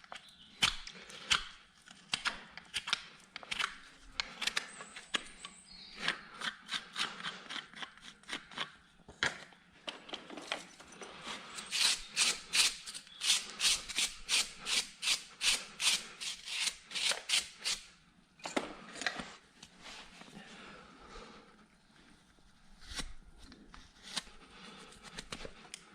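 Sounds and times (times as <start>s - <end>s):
hand tool scraping hoof: 2.7s - 8.9s, 10.4s - 17.9s.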